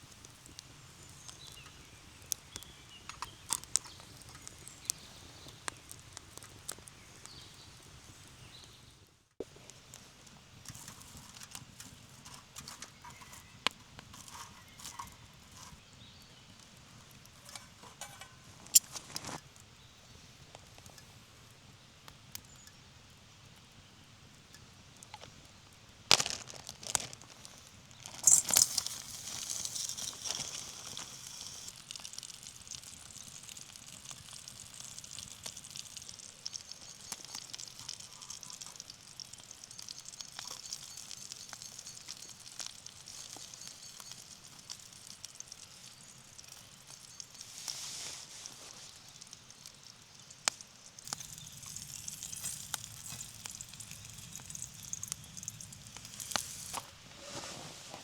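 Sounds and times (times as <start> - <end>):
campfire crackling: 0.0 - 58.0
campfire sharp snaps: 49.2 - 56.8.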